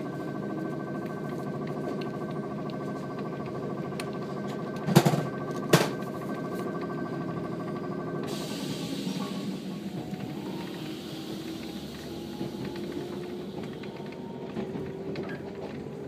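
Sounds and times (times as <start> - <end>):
running gear whine: 0.0 - 16.0
train rumble: 0.0 - 16.0
hiss: 8.2 - 13.6
wheels clacking on rail joint: 9.0 - 16.0.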